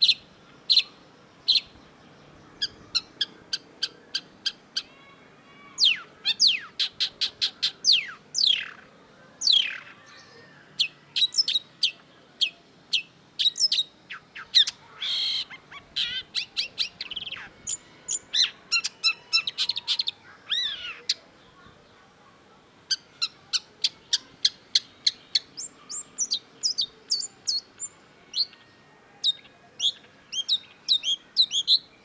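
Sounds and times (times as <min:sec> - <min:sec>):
shrike singing: 0:05.6 - 0:21.5.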